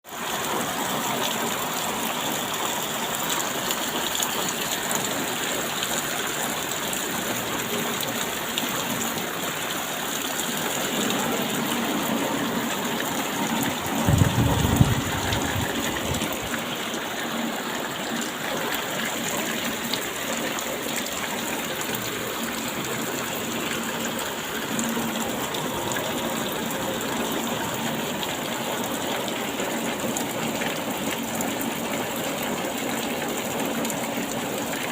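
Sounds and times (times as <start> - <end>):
steady rain: 0.0 - 34.9.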